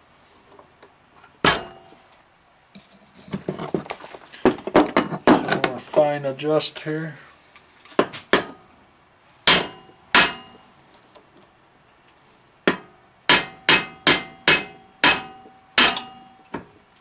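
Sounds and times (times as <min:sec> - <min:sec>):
hammer tapping metal: 0:09.5 - 0:10.6, 0:12.7 - 0:16.6.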